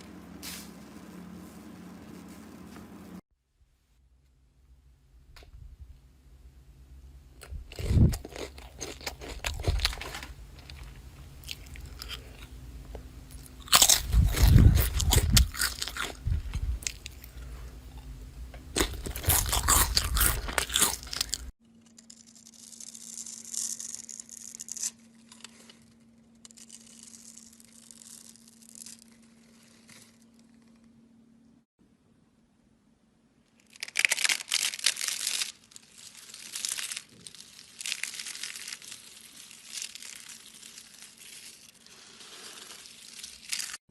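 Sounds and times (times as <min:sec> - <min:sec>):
slime crackling when squeezed: 0:33.6 - 0:43.8.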